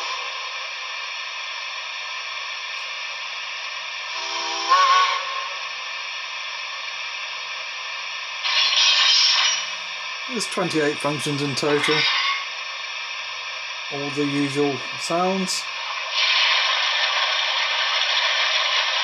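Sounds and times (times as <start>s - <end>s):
steam whistle toot: 0.0s - 0.6s, 4.1s - 5.7s
steam hiss from small speaker: 0.0s - 19.0s.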